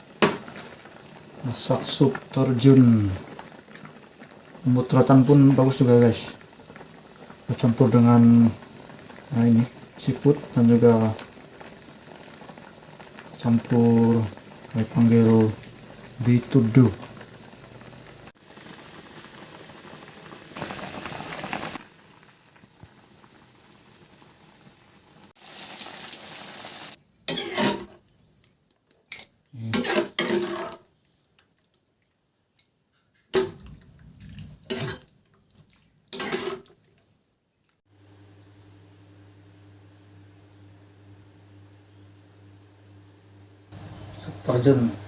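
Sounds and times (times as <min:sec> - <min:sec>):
soup bubbling in a pot: 0:00.0 - 0:27.6
utensils and dishes clattering: 0:29.1 - 0:30.8, 0:34.7 - 0:35.1, 0:36.2 - 0:36.7.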